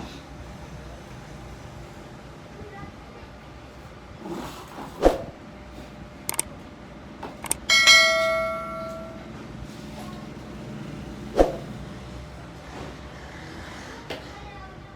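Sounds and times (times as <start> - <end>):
sharp clicks: 6.3 - 6.5, 7.4 - 7.7
metal object ringing when struck: 7.6 - 9.4.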